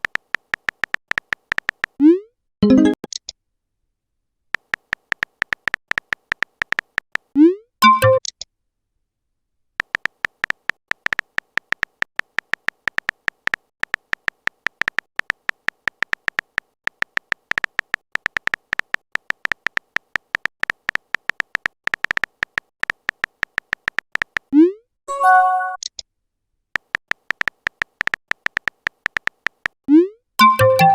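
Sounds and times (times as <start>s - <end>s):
typing sound effect beeps: 0.0s - 3.2s, 4.8s - 8.3s, 27.3s - 30.9s.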